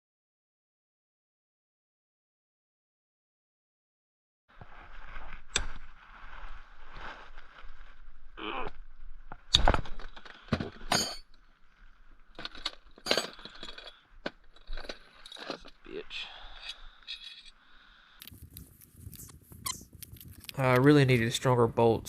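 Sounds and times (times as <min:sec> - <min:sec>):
wrench clicking and scraping on nut: 0:16.6 - 0:17.6.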